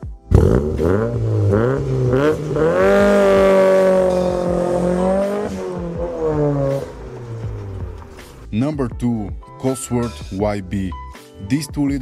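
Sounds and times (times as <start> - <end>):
car engine revving hard: 0.3 - 8.4.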